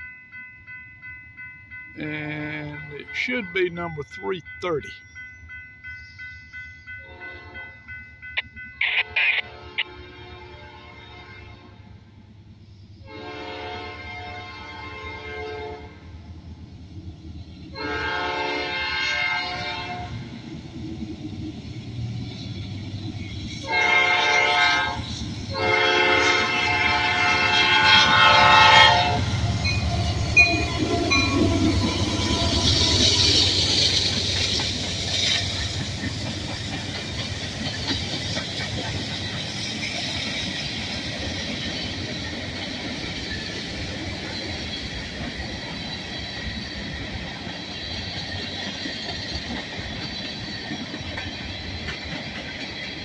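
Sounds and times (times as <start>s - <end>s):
locomotive passing: 0.0s - 10.2s, 16.0s - 53.0s
freight train rolling past: 0.0s - 53.0s
locomotive horn blasts: 9.0s - 11.8s, 13.1s - 16.0s, 17.8s - 20.2s, 23.6s - 29.4s
clickety-clack over rail joints: 29.6s - 53.0s.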